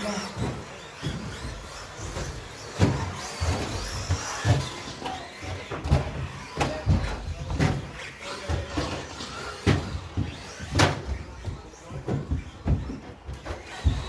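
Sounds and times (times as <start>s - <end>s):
electric motors whining: 0.0s - 14.0s
toy trucks thumping on track: 0.1s - 14.0s.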